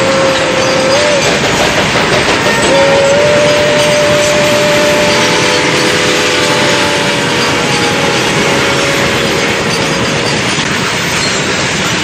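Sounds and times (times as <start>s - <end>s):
train wheels clattering on rails: 0.0s - 12.0s
thin steady squeal: 2.4s - 12.0s.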